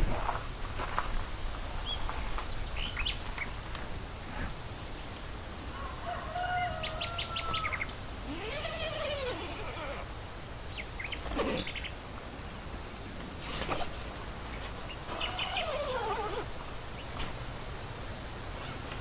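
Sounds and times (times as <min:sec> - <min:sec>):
outdoor background hiss: 0:00.0 - 0:19.0
birds chirping: 0:01.8 - 0:05.2, 0:10.6 - 0:12.2, 0:14.5 - 0:17.4
rooster crowing: 0:05.7 - 0:08.6.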